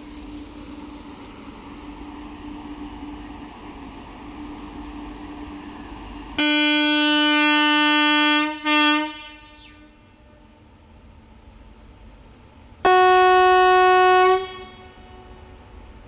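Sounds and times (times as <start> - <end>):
low rumble of a train: 0.0 - 16.0
locomotive air horn: 6.4 - 10.6, 12.8 - 15.6.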